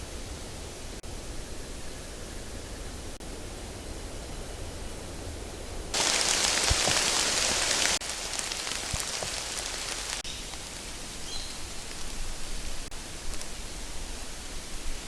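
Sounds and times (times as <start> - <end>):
rain-like hiss: 0.0 - 15.0.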